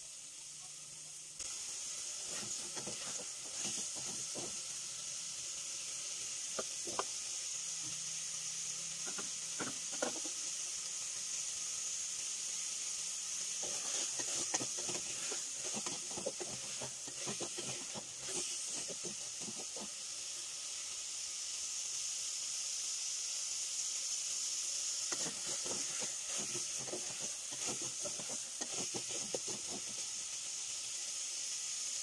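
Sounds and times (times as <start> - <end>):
meat sizzling in hot oil: 0.0 - 32.0
wooden spatula scraping a pot: 2.2 - 4.6, 6.6 - 7.1, 9.1 - 10.4, 13.6 - 20.0, 25.1 - 30.1.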